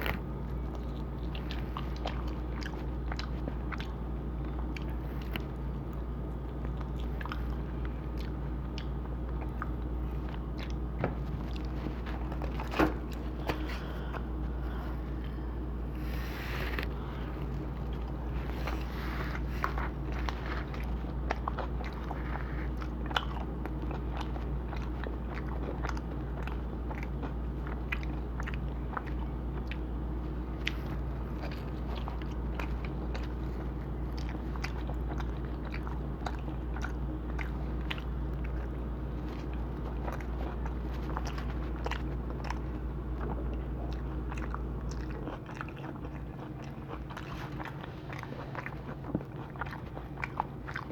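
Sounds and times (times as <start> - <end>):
low hum: 0.0 - 25.2
chewing and crunching pizza: 0.0 - 50.9.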